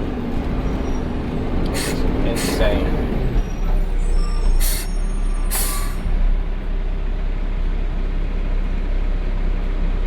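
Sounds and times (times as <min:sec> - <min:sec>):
truck engine running: 0:00.0 - 0:10.0
compressed air hisses: 0:01.8 - 0:02.6, 0:04.6 - 0:04.9, 0:05.5 - 0:06.0.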